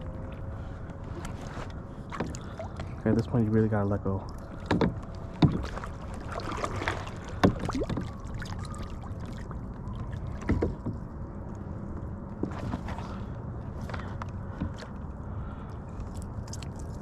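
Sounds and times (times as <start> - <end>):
knocks and bumps on a kayak: 4.6 - 8.2, 10.4 - 11.1, 12.0 - 13.2, 13.8 - 15.0.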